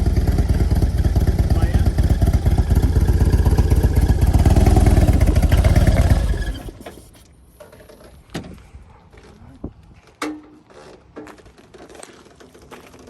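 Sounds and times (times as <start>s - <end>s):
motorcycle engine rumbling: 0.0s - 8.3s.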